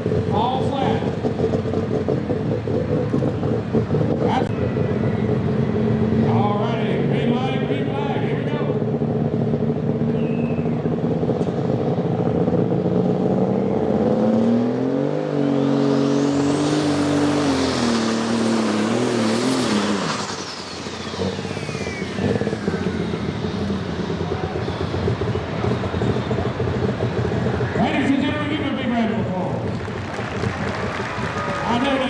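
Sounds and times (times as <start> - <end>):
diesel tractor engine revving: 0.0 - 32.0
high turbo whistle: 10.1 - 10.9, 15.2 - 26.7.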